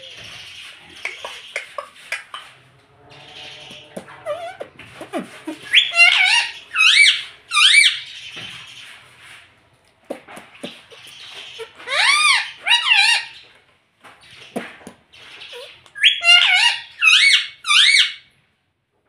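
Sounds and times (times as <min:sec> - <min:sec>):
parrot squawking: 0:00.0 - 0:08.1, 0:10.1 - 0:13.4, 0:15.3 - 0:18.3
parrot clicks and chatter: 0:01.0 - 0:02.6, 0:10.1 - 0:13.1.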